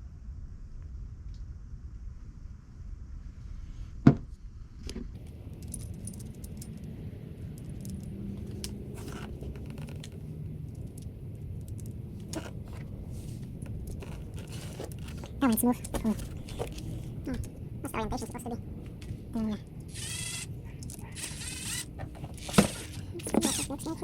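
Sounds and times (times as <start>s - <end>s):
metal parts clinking and rattling: 5.2s - 12.8s, 13.5s - 17.1s, 19.8s - 24.0s.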